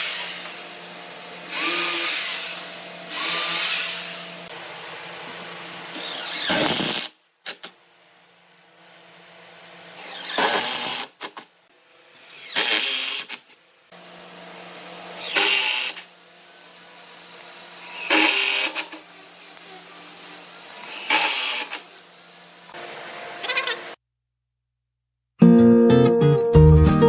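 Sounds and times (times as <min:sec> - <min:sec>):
power tool motor running: 0:00.0 - 0:04.6, 0:15.2 - 0:22.8
harsh bursts of tool cutting wood: 0:01.5 - 0:04.4, 0:05.9 - 0:07.6, 0:10.0 - 0:11.5, 0:12.1 - 0:13.5, 0:15.2 - 0:16.1, 0:16.7 - 0:22.8.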